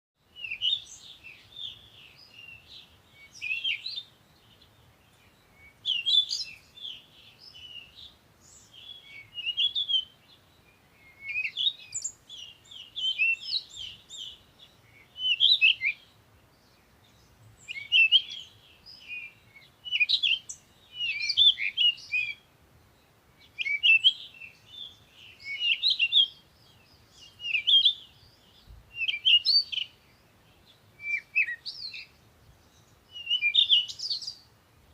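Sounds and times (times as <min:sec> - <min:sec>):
songbirds chirping and trilling: 0:00.2 - 0:34.9.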